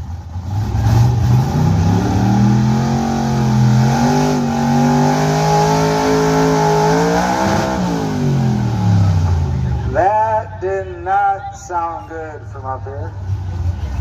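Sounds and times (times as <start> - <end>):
pickup truck engine at full throttle: 0.0 - 11.4, 12.6 - 14.0
announcer speaking: 9.5 - 13.2.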